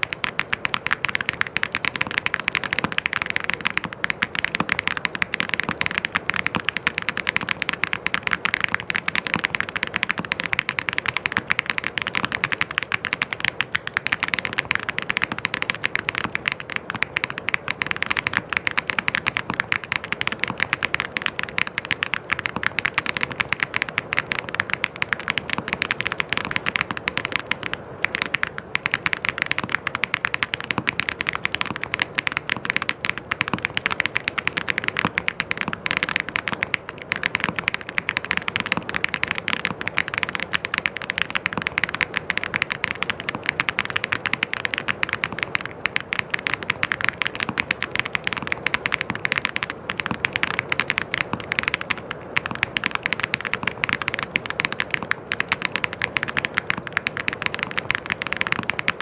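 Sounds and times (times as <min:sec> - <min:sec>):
typing on mechanical keyboard: 0:00.0 - 0:59.0.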